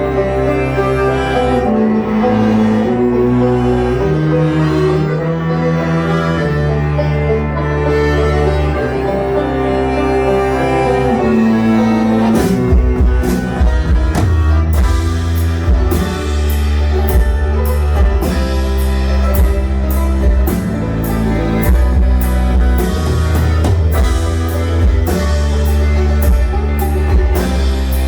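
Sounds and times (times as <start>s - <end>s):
plucked acoustic strings: 0.0s - 28.0s
steady drum beat: 11.9s - 28.0s.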